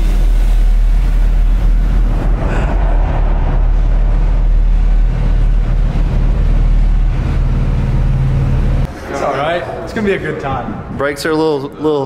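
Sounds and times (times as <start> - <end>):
car engines idling: 0.0 - 9.0.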